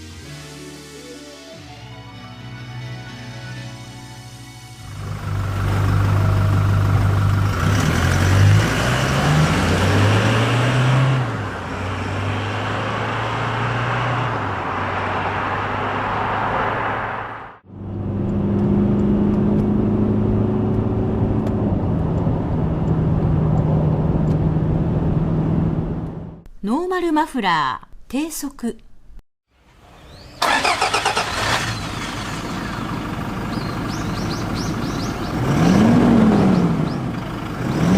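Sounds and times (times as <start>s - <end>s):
diesel engine exhaust: 4.2s - 16.4s, 30.1s - 37.9s.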